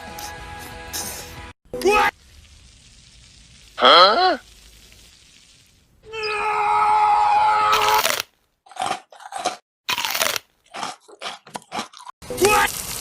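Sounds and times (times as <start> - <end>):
crunchy food chewing: 7.8 - 12.1.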